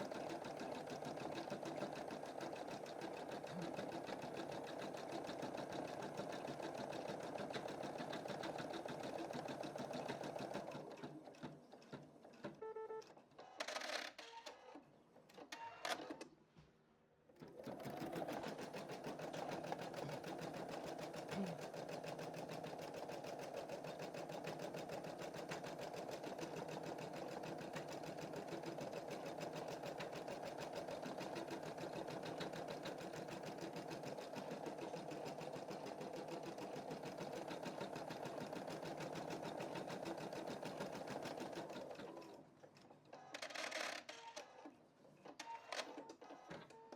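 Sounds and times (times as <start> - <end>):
embroidery machine stitching: 0.0 - 11.6, 17.4 - 42.5.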